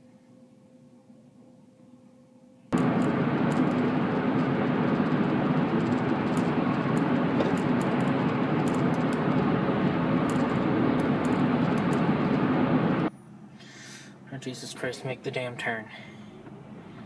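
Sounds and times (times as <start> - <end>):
car road and engine noise: 2.8 - 13.4, 14.3 - 17.0.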